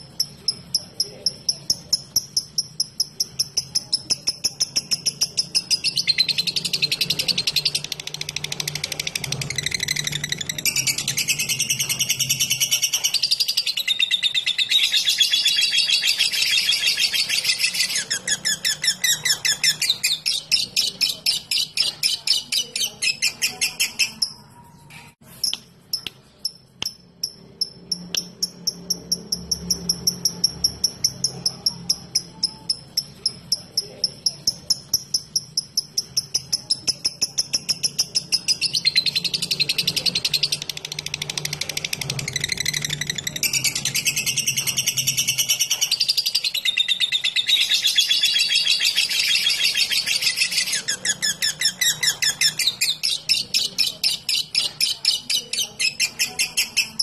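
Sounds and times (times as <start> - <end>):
lovebird chattering and chirping: 0.0 - 57.0.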